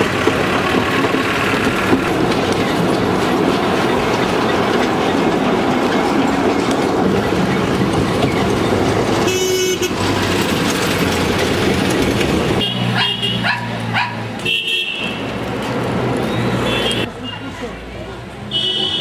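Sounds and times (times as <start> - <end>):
steam train rattling and rumbling: 0.0 - 14.5
high train horn toots: 9.2 - 10.0, 12.6 - 13.4, 14.4 - 15.2, 16.6 - 17.1, 18.5 - 19.0.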